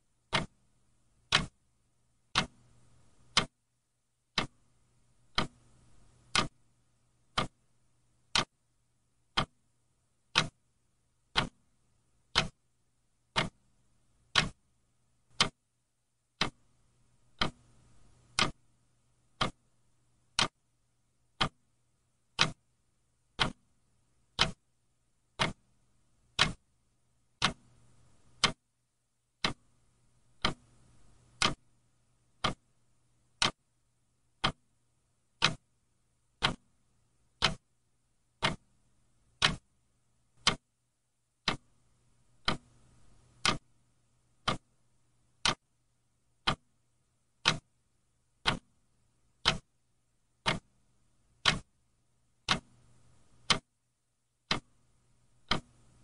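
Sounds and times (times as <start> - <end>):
faint low hum: 0.0 - 56.0
clock ticking: 0.2 - 0.6, 1.2 - 1.6, 2.2 - 2.6, 3.2 - 3.6, 4.3 - 4.6, 5.2 - 6.6, 7.2 - 7.6, 8.2 - 8.5, 9.2 - 9.6, 10.3 - 10.6, 11.3 - 11.6, 12.2 - 12.6, 13.3 - 13.7, 14.3 - 14.6, 15.3 - 15.6, 16.3 - 16.7, 17.3 - 20.6, 21.3 - 21.6, 22.3 - 22.6, 23.3 - 23.7, 24.3 - 24.6, 25.3 - 25.7, 26.3 - 26.7, 27.4 - 28.6, 29.4 - 29.7, 30.3 - 31.7, 32.3 - 33.6, 34.4 - 34.8, 35.4 - 35.8, 36.4 - 36.8, 37.4 - 37.7, 38.4 - 38.8, 39.4 - 39.8, 40.4 - 40.7, 41.4 - 41.8, 42.4 - 43.7, 44.4 - 44.8, 45.4 - 45.7, 46.4 - 46.8, 47.4 - 47.7, 48.4 - 48.8, 49.4 - 49.7, 50.4 - 50.8, 51.4 - 51.8, 52.4 - 53.7, 54.4 - 54.8, 55.4 - 56.0.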